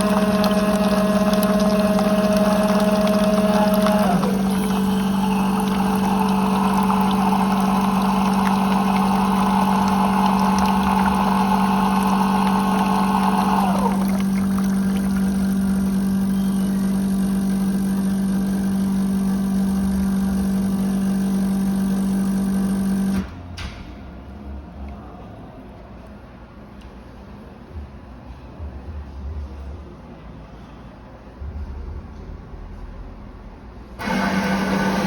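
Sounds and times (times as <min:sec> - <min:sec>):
high motor whine: 0:00.0 - 0:23.2
coffee machine motor hum: 0:00.0 - 0:23.3, 0:34.0 - 0:35.0.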